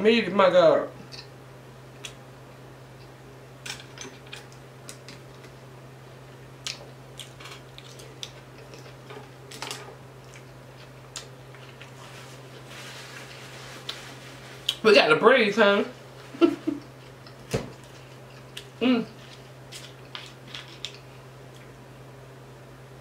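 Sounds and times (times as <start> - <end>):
steady low hum: 0.0 - 23.0
person chewing crispy fish: 6.6 - 9.6, 16.8 - 21.7.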